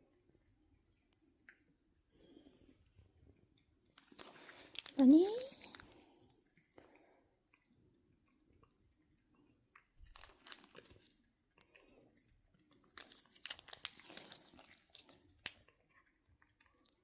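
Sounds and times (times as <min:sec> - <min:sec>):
grocery bag rustling and crinkling: 0:13.0 - 0:15.2.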